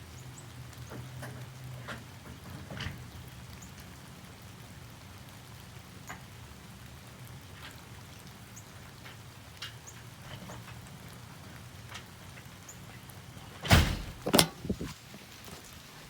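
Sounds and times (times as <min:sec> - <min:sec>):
drip-like ticks: 0:05.2 - 0:13.2.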